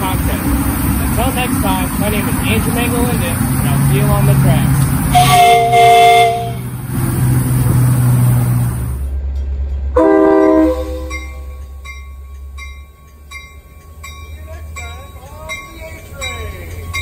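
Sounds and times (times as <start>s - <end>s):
steam hissing: 0.0s - 5.5s
steam whistle: 5.1s - 6.6s, 10.0s - 11.2s
train horn blast: 5.1s - 6.7s, 10.0s - 11.6s
bell dinging: 10.4s - 17.0s.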